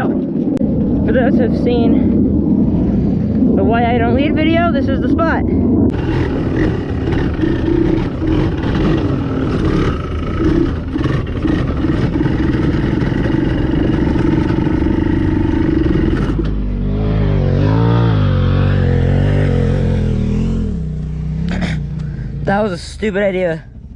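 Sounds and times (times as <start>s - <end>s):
dirt bike engine revving: 5.9s - 22.8s.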